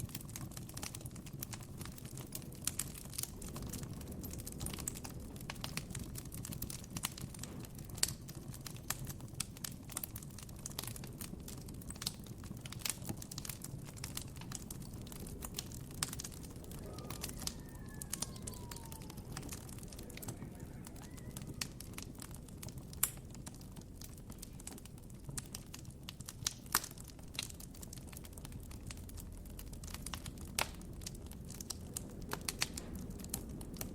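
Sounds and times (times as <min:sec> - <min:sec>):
campfire crackling: 0:00.0 - 0:33.9
faint bird call gliding down: 0:16.7 - 0:22.0.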